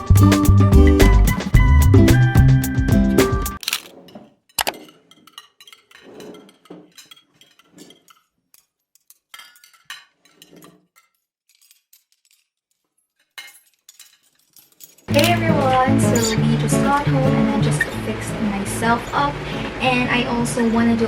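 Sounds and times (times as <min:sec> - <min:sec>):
small objects clinking: 0:03.6 - 0:16.4.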